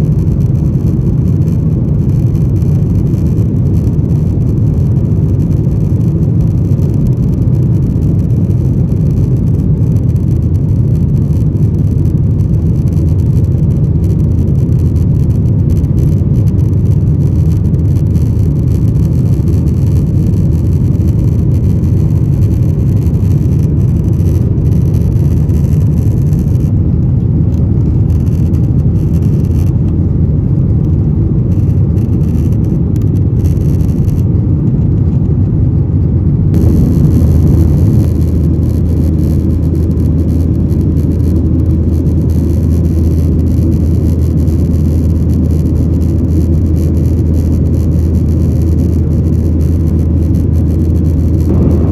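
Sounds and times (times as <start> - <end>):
jet engine and airflow rumble: 0.0 - 51.9.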